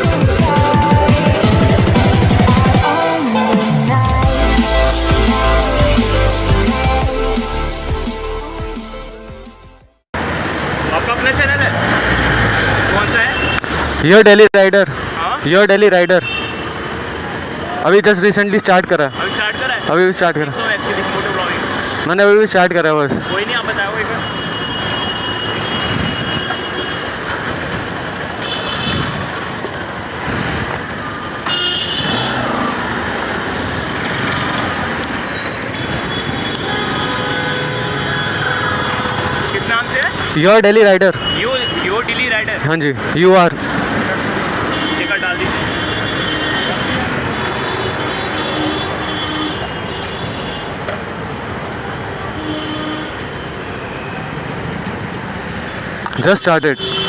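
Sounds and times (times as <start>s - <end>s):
road traffic noise: 0.0s - 57.0s
high-pitched squealing tones: 30.9s - 41.9s.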